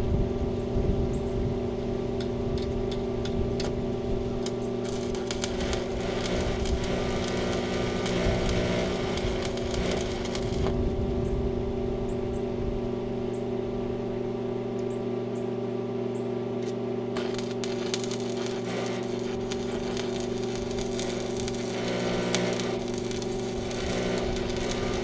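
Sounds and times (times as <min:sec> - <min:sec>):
engine running steadily: 0:00.0 - 0:25.0
crackling hiss with sharp clicks: 0:04.4 - 0:10.8, 0:16.6 - 0:25.0.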